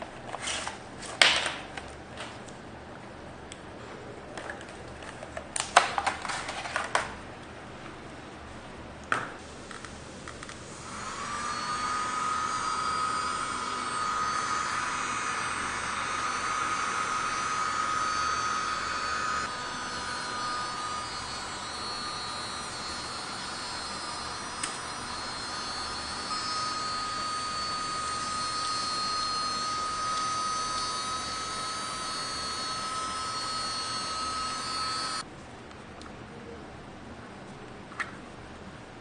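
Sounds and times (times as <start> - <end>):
vacuum cleaner motor whining: 10.7 - 35.2.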